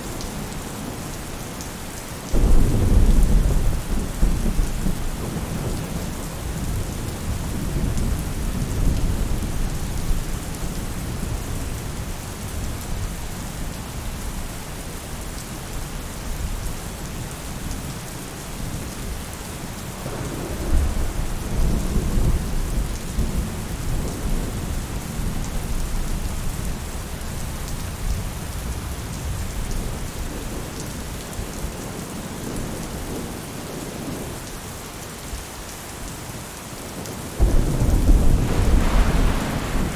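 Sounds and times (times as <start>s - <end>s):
rain falling on a roof: 0.0s - 39.9s
thunder rumbling: 2.3s - 10.0s, 20.0s - 25.5s, 37.4s - 39.9s.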